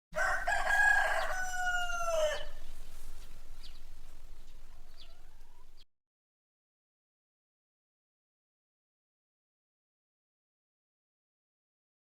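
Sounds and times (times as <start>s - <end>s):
rooster crowing: 0.2s - 5.8s.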